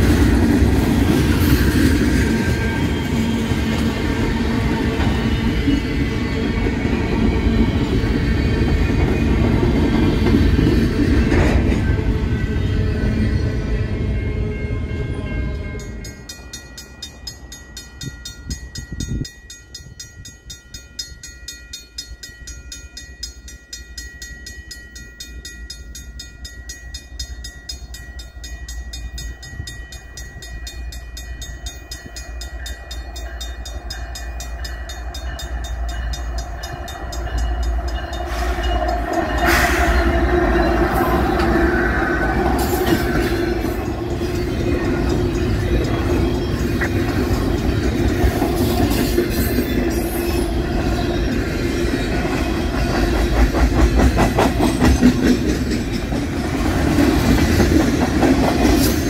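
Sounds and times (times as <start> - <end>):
train rumbling: 0.0 - 21.3, 24.7 - 59.0
railway crossing bell ringing: 0.0 - 59.0
train clanks: 0.0 - 59.0.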